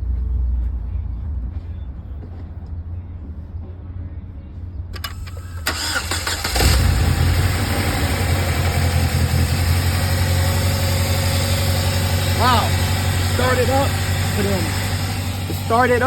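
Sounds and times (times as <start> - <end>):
car engine starting and idling: 5.0 - 16.0.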